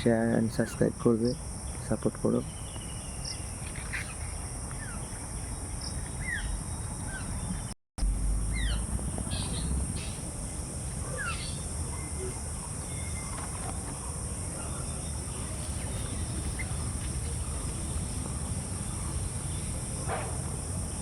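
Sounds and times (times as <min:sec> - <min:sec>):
birds chirping: 0:00.0 - 0:21.0
high insect drone: 0:00.0 - 0:21.0
low rumble: 0:08.0 - 0:10.8.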